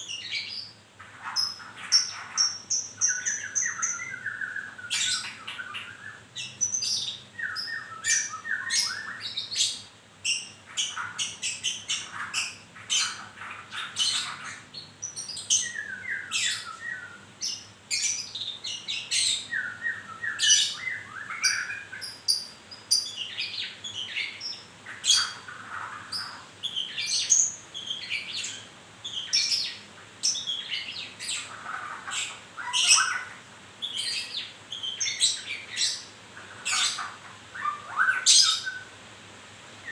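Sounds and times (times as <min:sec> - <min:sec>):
songbird singing: 0:00.0 - 0:39.0.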